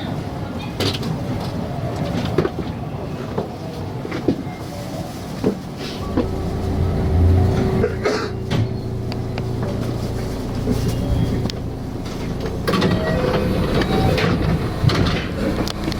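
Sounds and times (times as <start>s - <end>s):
train cabin rumble and hum: 0.0s - 15.9s
steady tone: 6.0s - 14.8s.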